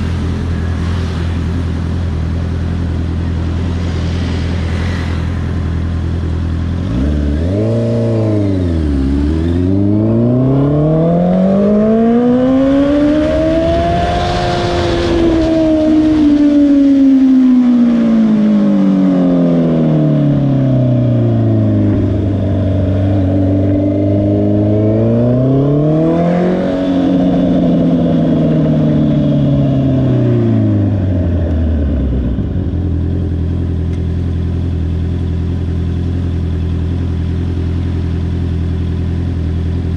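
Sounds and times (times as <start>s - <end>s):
motorcycle engine slowing to idle: 30.6s - 39.9s.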